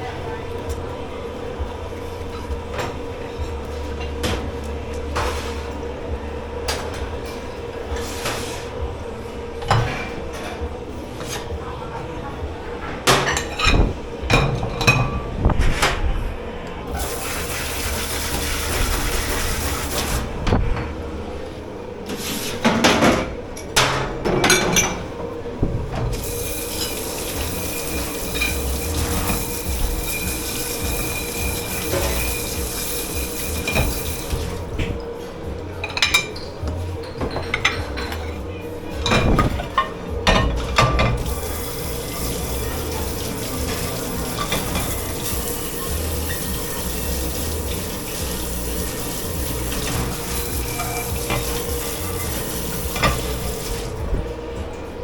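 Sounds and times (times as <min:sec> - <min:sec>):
kitchen hum: 0:00.0 - 0:55.0
dishes and cutlery clattering: 0:12.8 - 0:16.0, 0:22.5 - 0:25.2, 0:25.9 - 0:35.0, 0:35.8 - 0:38.4, 0:39.0 - 0:54.0
water running from a tap: 0:16.9 - 0:20.3, 0:26.1 - 0:35.0, 0:41.2 - 0:54.0.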